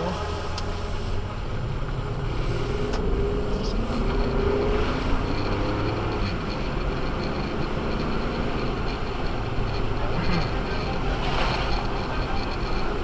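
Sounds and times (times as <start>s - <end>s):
car engine rumble: 0.0s - 13.0s
road noise: 0.0s - 13.0s.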